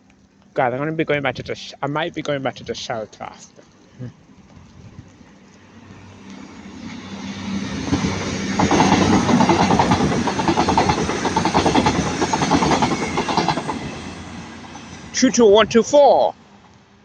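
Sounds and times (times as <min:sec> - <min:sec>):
train passing at speed: 0:05.1 - 0:17.0
wheels clattering over rail joints: 0:07.7 - 0:15.2.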